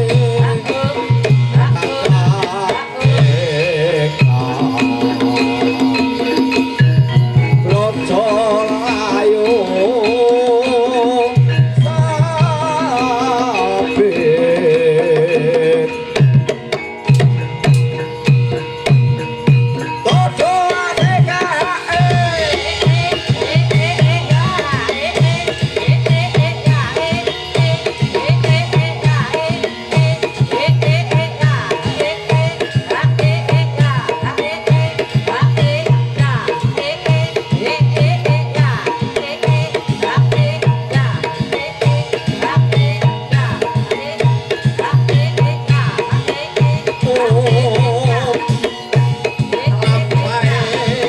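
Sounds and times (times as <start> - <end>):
wavering melody line: 1.6 - 16.0
low hand drum beat: 4.2 - 8.6.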